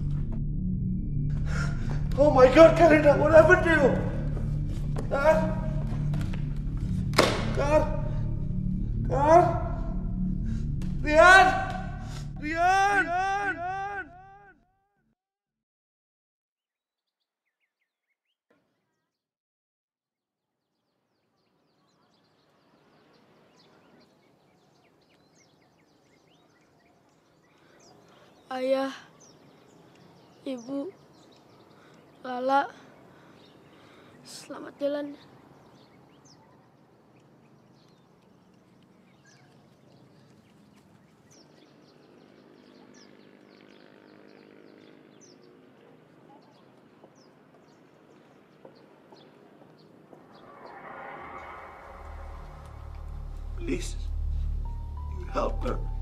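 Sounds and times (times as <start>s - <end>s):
faint outdoor ambience: 0.0s - 14.5s, 20.8s - 56.0s
small birds chirping: 20.6s - 56.0s.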